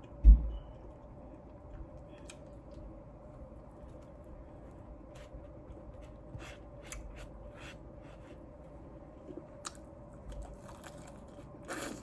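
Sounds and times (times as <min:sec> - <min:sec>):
chewing crispy fried chicken: 0:09.6 - 0:12.0.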